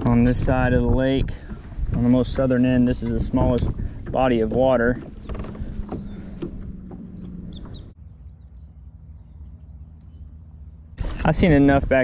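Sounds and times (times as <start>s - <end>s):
bird calls: 5.0s - 10.9s
steady low hum: 5.1s - 11.0s.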